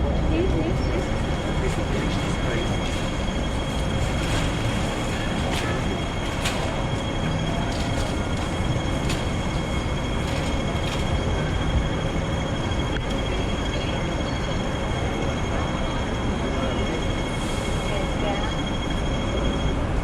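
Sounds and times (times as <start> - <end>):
tram wheels rumbling on rails: 0.0 - 20.0.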